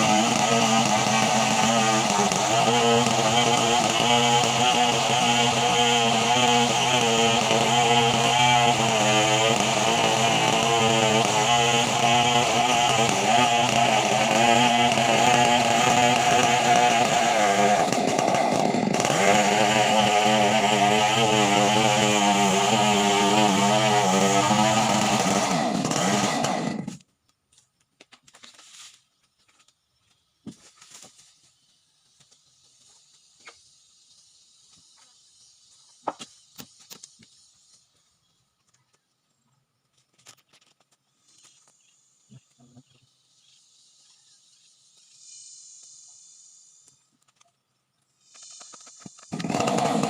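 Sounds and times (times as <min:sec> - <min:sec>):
chainsaw cutting wood: 0:00.0 - 0:27.1, 0:48.4 - 0:50.0.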